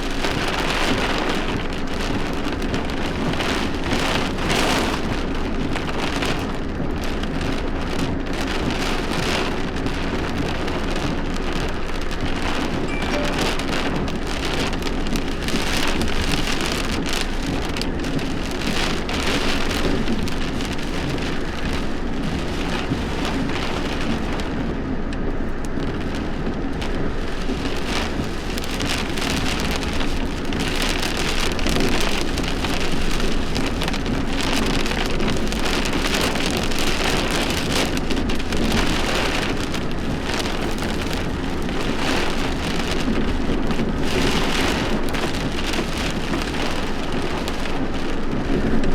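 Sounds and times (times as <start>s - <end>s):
heavy rain falling: 0.0s - 48.9s
raindrops spattering on a surface: 0.0s - 48.9s.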